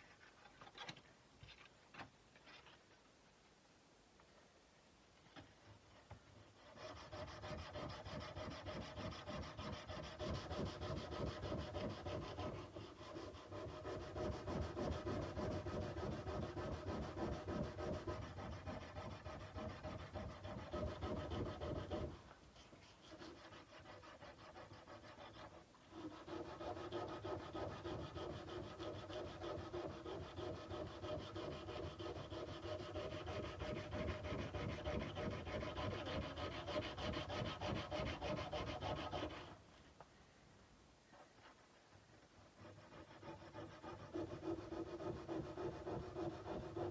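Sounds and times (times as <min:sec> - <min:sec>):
sandpaper rubbing on steel blade: 0:06.6 - 0:39.6, 0:42.6 - 0:46.9.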